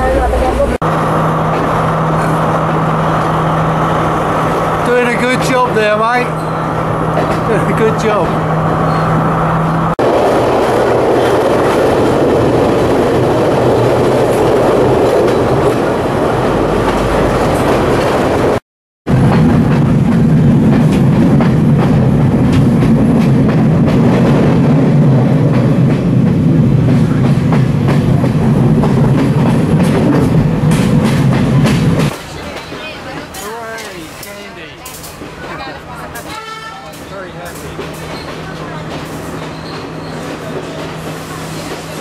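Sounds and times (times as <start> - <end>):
train wheels running noise: 19.2 - 42.0.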